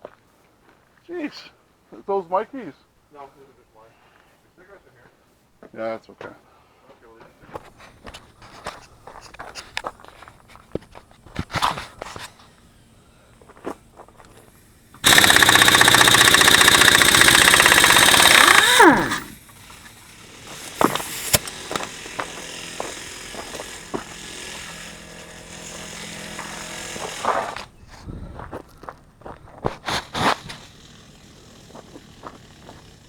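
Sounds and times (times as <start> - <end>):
machine humming with clicks: 14.2 - 22.5
loud mechanical rattle: 14.2 - 27.7, 29.8 - 33.0.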